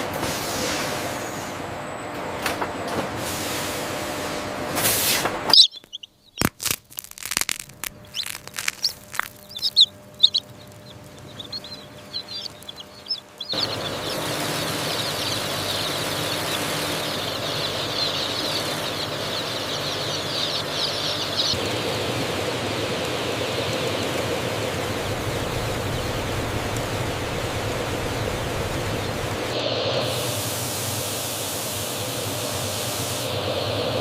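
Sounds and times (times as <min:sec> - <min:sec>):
chickens squawking: 0:05.4 - 0:06.5, 0:07.6 - 0:21.8
din of many birds calling: 0:05.4 - 0:06.5, 0:07.9 - 0:29.6.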